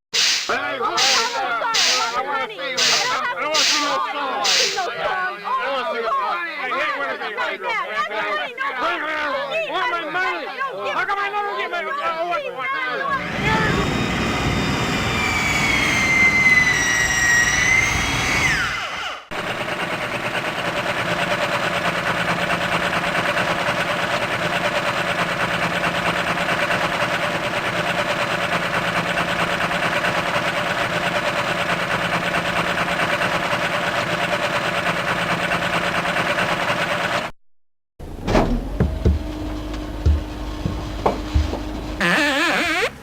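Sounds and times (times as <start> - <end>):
machine running with fast flutter: 0.1 - 2.2, 2.8 - 4.9
mechanical whine: 0.2 - 2.2, 2.8 - 4.9, 13.2 - 19.3.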